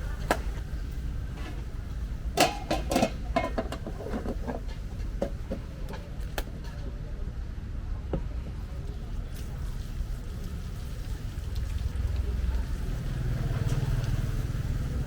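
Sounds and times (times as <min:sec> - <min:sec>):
metal utensils clanking: 0:02.4 - 0:06.1.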